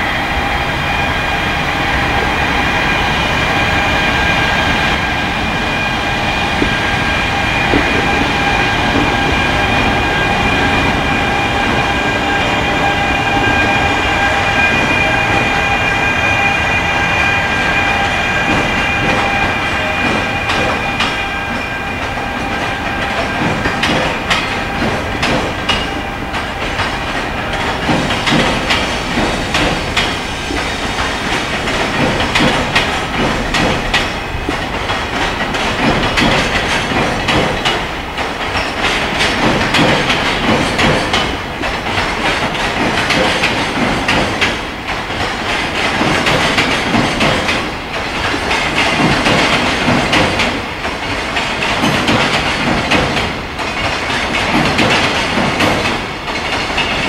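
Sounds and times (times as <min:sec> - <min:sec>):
freight train passing: 0:00.0 - 0:57.0
wheels clattering over rail joints: 0:22.5 - 0:57.0.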